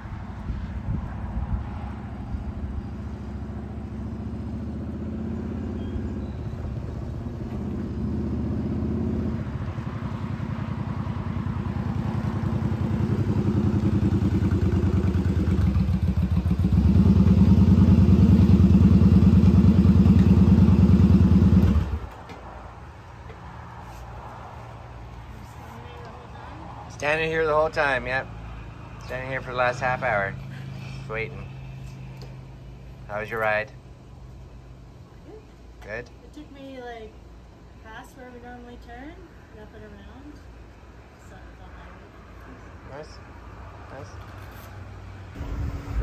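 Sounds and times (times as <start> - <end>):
motorcycle engine running: 10.4 - 22.1, 45.4 - 46.0.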